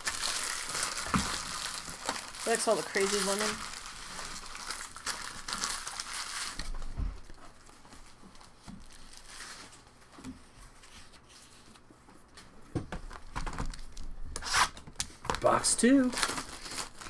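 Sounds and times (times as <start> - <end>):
cards and foil wrappers rustling: 0.0 - 17.0.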